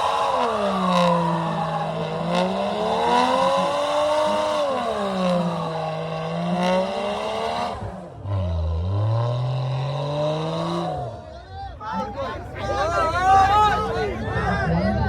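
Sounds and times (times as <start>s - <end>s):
car engine revving: 0.0s - 11.3s.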